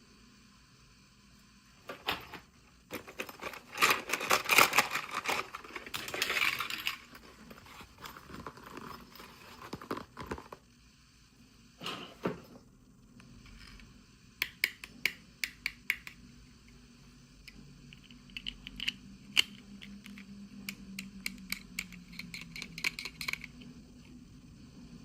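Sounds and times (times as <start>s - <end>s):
plastic pieces clicking and tapping: 14.4s - 16.2s, 17.9s - 23.7s.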